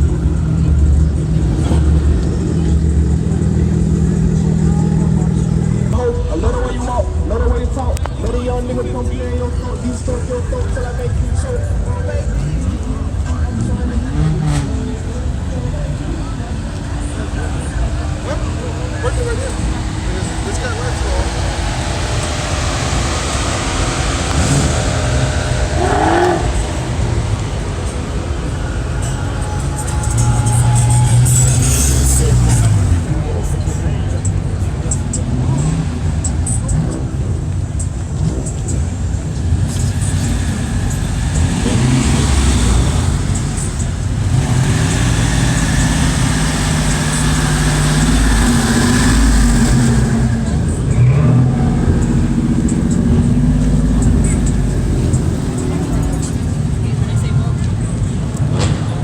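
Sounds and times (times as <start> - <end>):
car engines rumbling: 0.0 - 59.0
short rising tone: 19.4 - 32.9.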